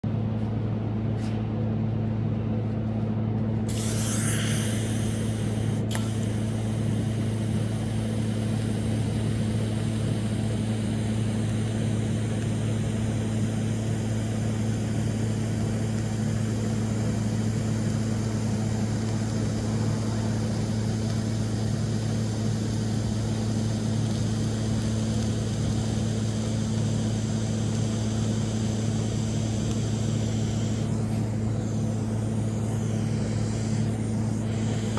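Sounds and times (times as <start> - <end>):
welder electrical hum: 0.0 - 34.9
sharp click: 3.7 - 6.5
welding arc hissing: 3.7 - 34.9.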